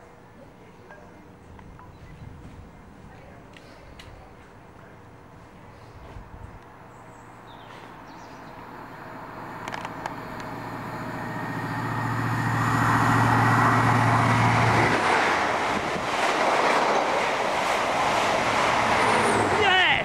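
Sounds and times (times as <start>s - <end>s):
diesel train engine hum: 4.2s - 20.0s
train wheels and air rushing: 7.6s - 20.0s.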